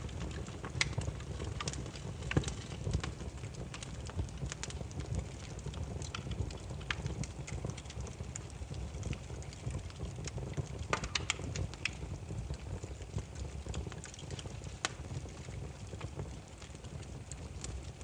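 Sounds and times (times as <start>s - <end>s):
low rumble of flames: 0.0s - 18.0s
wood fire crackling and popping: 0.0s - 18.0s.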